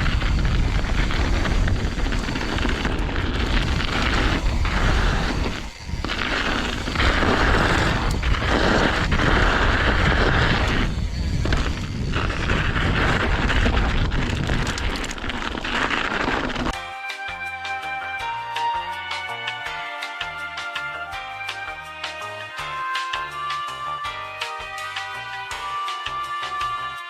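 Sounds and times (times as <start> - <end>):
bike tyres on dirt trail: 0.0 - 16.8
wind buffeting microphone: 0.0 - 16.8.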